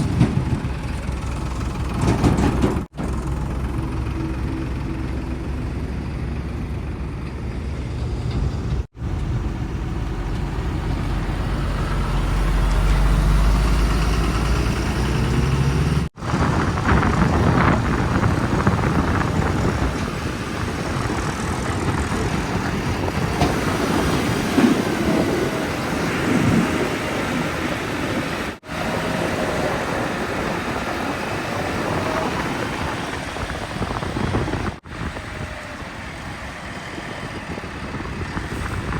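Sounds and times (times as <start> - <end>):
heavy diesel machinery running: 0.0 - 38.9.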